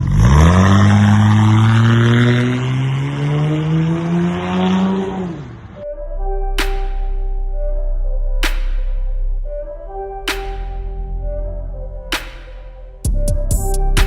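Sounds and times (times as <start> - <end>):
car engine accelerating: 0.0 - 10.1
music with sharp beat: 6.6 - 7.4, 8.4 - 9.1, 10.2 - 11.1, 12.1 - 14.0.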